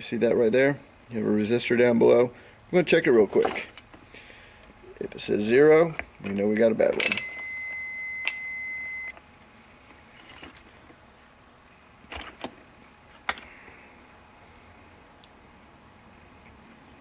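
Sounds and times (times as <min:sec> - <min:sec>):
multimeter high-pitched beep: 0:07.0 - 0:09.2.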